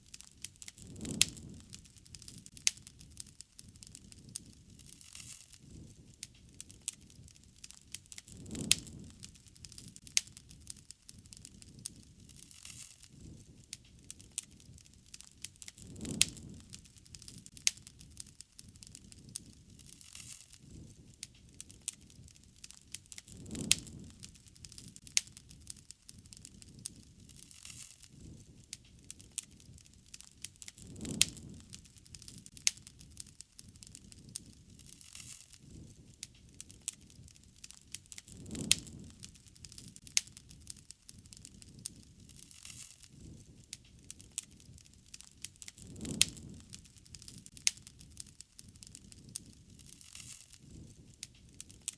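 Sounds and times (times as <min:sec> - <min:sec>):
low rustle of burning: 0:00.0 - 0:51.9
wood fire crackling: 0:00.0 - 0:51.9.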